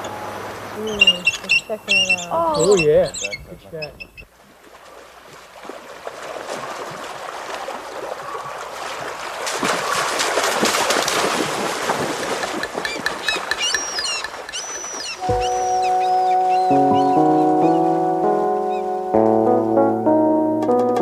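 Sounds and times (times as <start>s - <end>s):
rushing water with crackles: 0.0s - 18.6s
high bird chirps: 0.8s - 4.2s, 12.8s - 18.0s.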